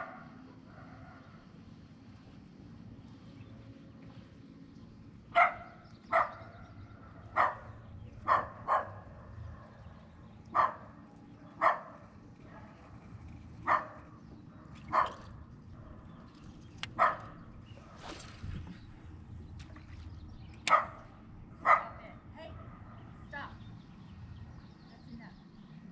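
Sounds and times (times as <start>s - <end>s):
low steady rumble: 0.0s - 25.9s
bark-like animal calls: 5.4s - 9.2s, 10.5s - 11.0s, 11.6s - 12.1s, 13.6s - 14.1s, 16.8s - 17.4s, 20.7s - 22.0s.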